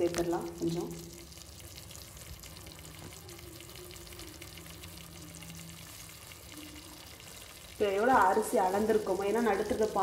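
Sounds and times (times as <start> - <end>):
food sizzling in a pot: 0.0 - 10.0.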